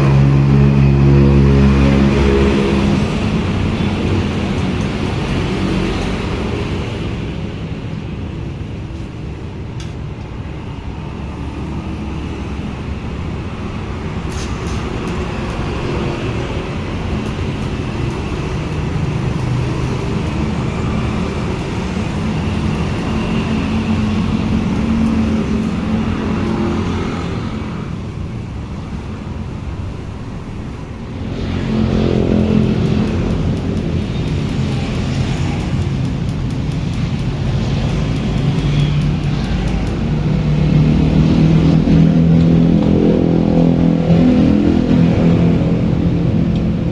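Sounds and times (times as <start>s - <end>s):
engine running: 0.0s - 46.9s.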